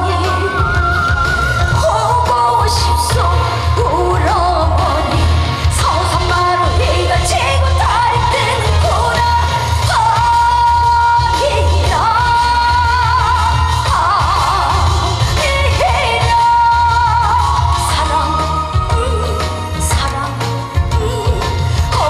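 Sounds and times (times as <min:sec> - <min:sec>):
woman singing through a pa: 0:00.0 - 0:22.0.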